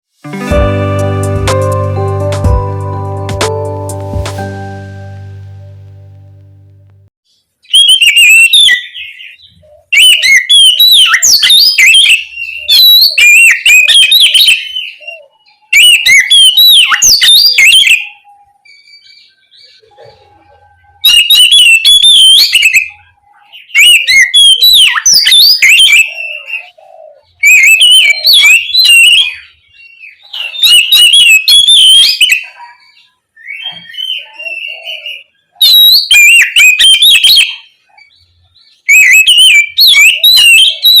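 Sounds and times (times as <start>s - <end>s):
bird singing whistled notes: 7.4s - 19.9s, 20.8s - 26.7s, 27.4s - 41.0s.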